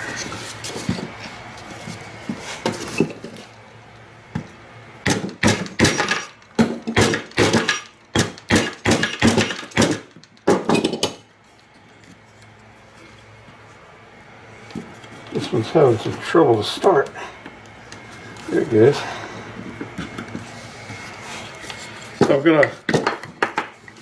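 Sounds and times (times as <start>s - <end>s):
hammer striking wood: 5.1s - 10.7s.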